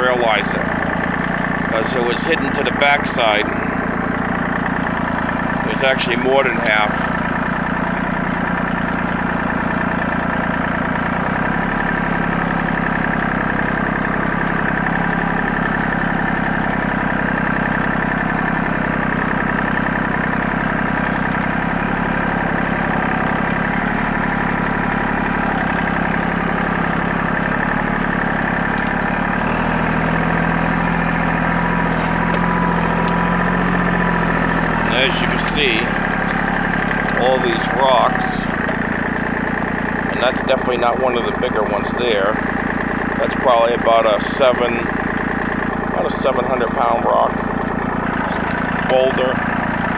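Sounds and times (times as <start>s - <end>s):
tractor engine running: 0.0s - 49.9s
faint clicks: 8.8s - 9.3s, 26.8s - 34.8s.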